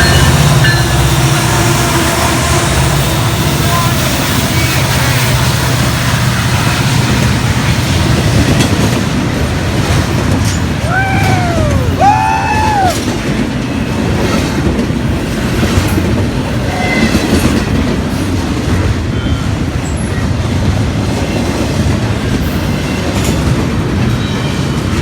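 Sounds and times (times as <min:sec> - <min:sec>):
freight train rumbling past: 0:00.0 - 0:25.0
wheels clacking over rail joints: 0:04.6 - 0:10.9
rising and falling high tone: 0:10.8 - 0:13.0.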